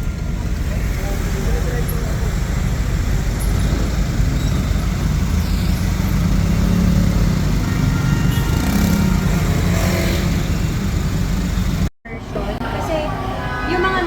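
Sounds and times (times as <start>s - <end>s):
motor vehicle rumble: 0.0s - 14.0s.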